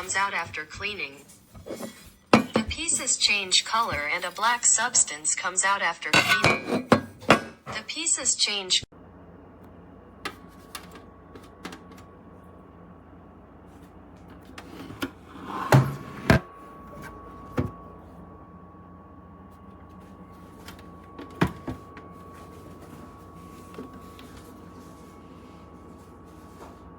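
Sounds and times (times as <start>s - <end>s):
thin steady whine: 0.0s - 6.6s, 16.4s - 26.9s
steady low hum: 0.0s - 26.9s.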